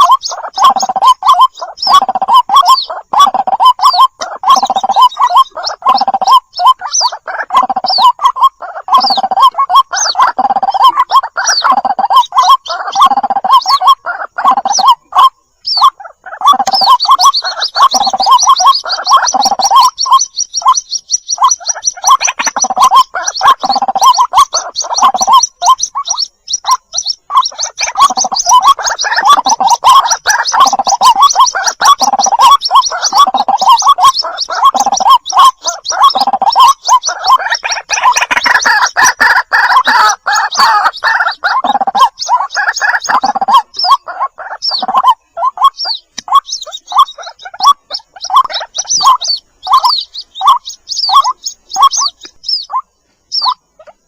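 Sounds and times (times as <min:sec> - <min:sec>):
waterhen chicks calling: 0:00.0 - 0:54.0
high rapid chattering trill: 0:16.5 - 0:20.8, 0:21.4 - 0:45.0.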